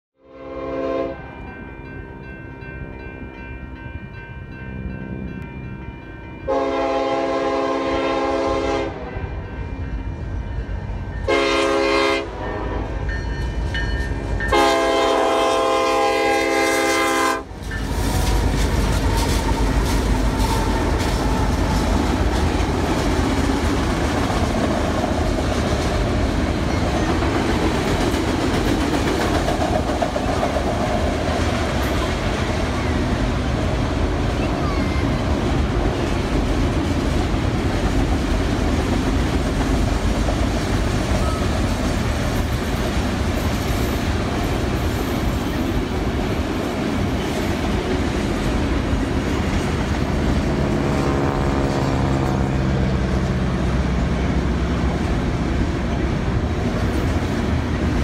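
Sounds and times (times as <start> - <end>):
locomotive horn blasts: 0.2 - 1.4, 6.5 - 9.4, 11.2 - 13.1, 14.5 - 17.6, 50.7 - 52.5
train rumble and clickety-clack: 0.6 - 58.0.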